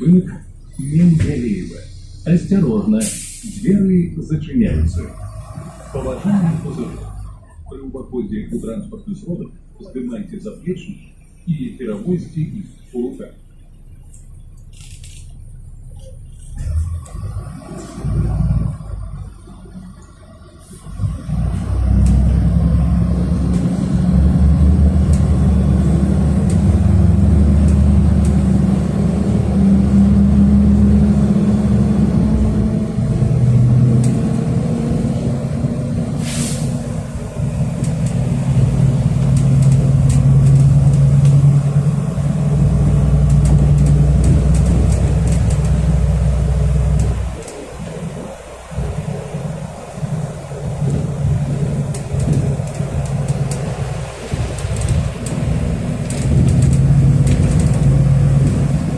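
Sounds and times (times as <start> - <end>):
bus engine drone: 0.0 - 58.9
brief hiss: 3.0 - 3.8, 36.2 - 36.9.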